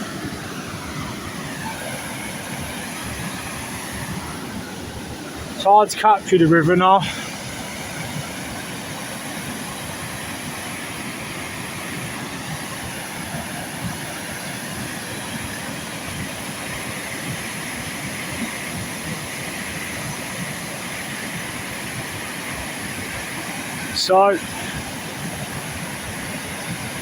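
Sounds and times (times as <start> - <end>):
fast-flowing river rushing: 0.0 - 27.0.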